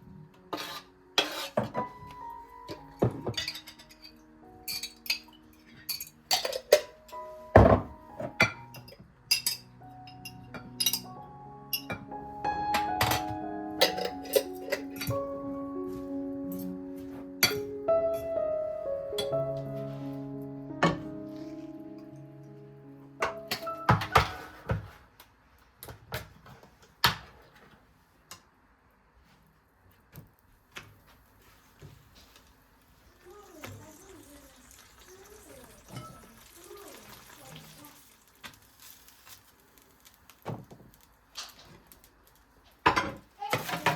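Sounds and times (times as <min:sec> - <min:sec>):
soft background music: 0:00.0 - 0:25.1
dishes and utensils clinking: 0:00.5 - 0:12.1, 0:12.8 - 0:15.3, 0:23.2 - 0:24.9, 0:33.8 - 0:37.5, 0:42.9 - 0:43.9.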